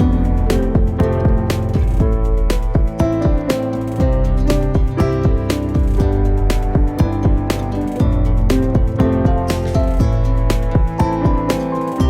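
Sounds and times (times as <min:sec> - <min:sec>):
plucked guitar: 0:00.0 - 0:12.0
steady beat: 0:00.0 - 0:12.0.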